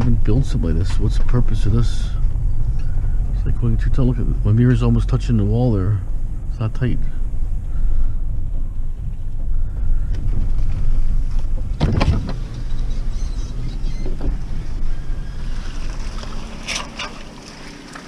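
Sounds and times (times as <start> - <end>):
vehicle cab rumble: 0.0 - 18.0.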